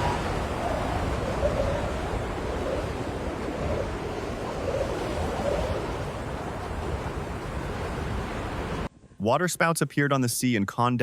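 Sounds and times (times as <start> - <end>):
wind blowing over microphone: 0.0 - 9.2.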